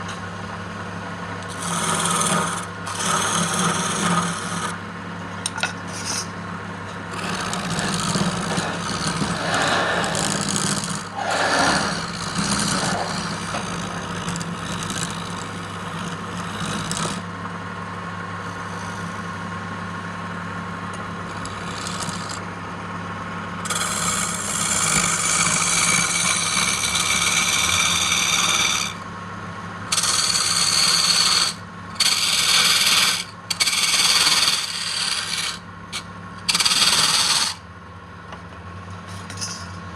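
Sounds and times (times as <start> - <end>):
lathe motor hum: 1.3 - 4.8, 6.9 - 37.6
tool scraping spinning wood: 1.4 - 4.8, 5.5 - 17.4, 18.4 - 19.5, 21.0 - 22.6, 23.6 - 29.1, 29.9 - 37.6.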